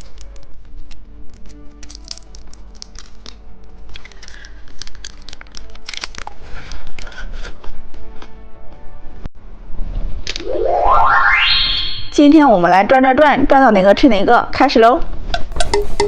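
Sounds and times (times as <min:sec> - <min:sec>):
candy wrapper crinkling and tearing: 0:01.3 - 0:07.2.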